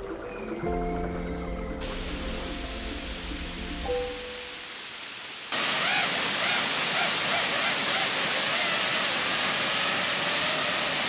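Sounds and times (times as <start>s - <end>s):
quiet hiss: 1.8s - 6.0s
waterfall roaring: 1.8s - 11.0s.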